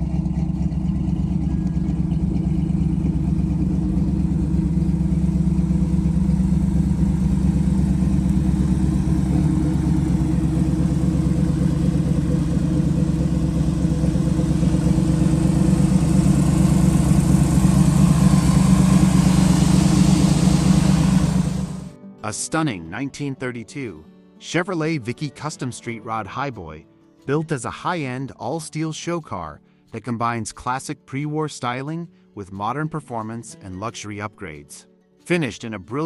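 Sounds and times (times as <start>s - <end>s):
car engine running: 0.0s - 21.9s.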